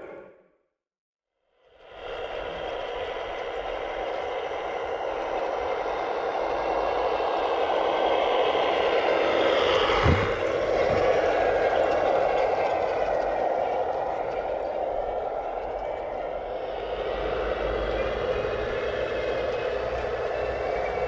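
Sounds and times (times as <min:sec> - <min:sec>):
short low thump: 0:09.8 - 0:11.5.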